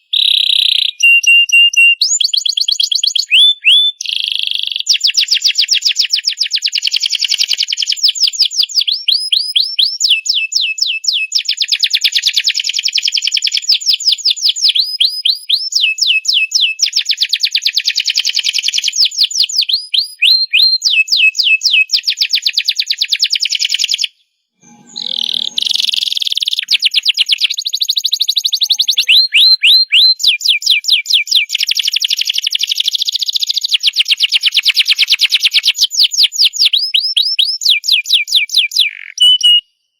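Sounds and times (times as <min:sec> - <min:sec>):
canary singing trills: 0:24.6 - 0:33.9.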